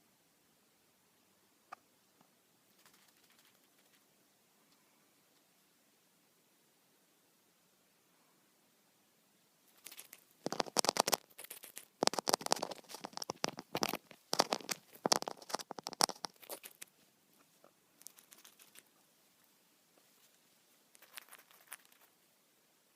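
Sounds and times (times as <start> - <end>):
bird beak nibbling phone: 9.8 - 16.9, 18.0 - 18.9, 20.9 - 22.1.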